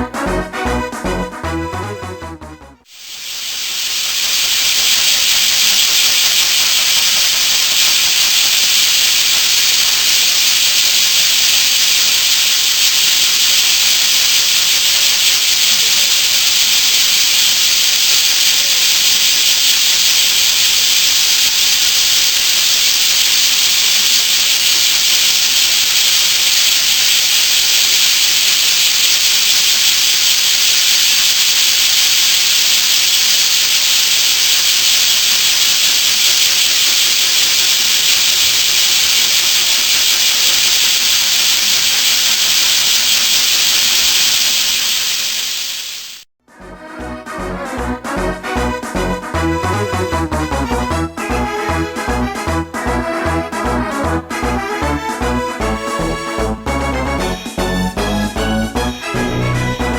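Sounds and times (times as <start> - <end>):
cicadas buzzing in chorus: 2.9 - 46.3.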